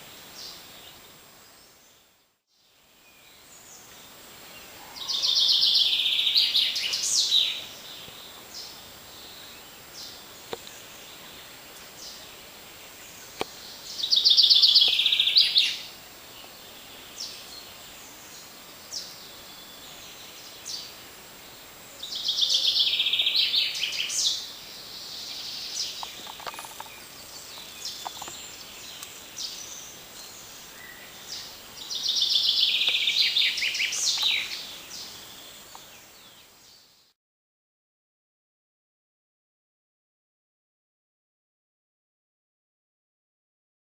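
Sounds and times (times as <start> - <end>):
forest creek rushing: 3.5 - 36.5
songbird trilling: 14.0 - 15.9, 25.2 - 35.1.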